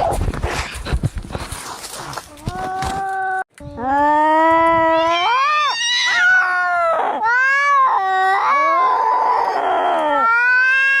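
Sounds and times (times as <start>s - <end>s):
cats yowling in a fight: 4.0s - 11.0s.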